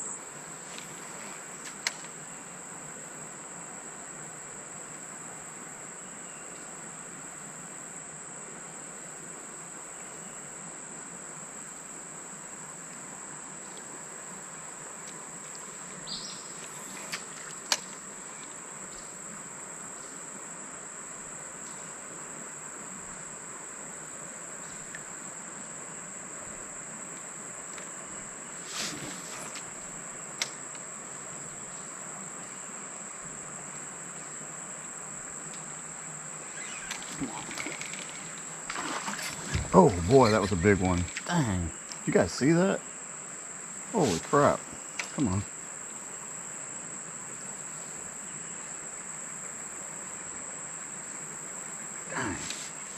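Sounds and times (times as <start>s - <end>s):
insects droning: 0.0s - 52.9s.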